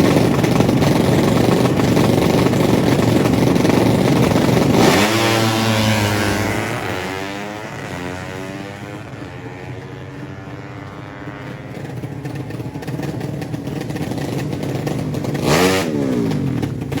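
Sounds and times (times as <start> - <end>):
motorcycle engines racing: 0.0 - 17.0
motorcycle passing by: 4.1 - 17.0.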